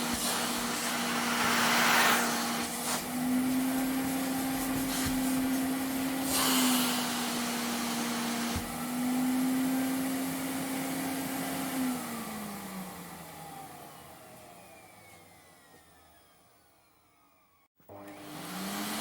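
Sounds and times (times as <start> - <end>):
vacuum cleaner click: 0.0 - 6.9, 8.4 - 8.8, 17.9 - 18.3
vacuum cleaner motor running: 0.0 - 19.0.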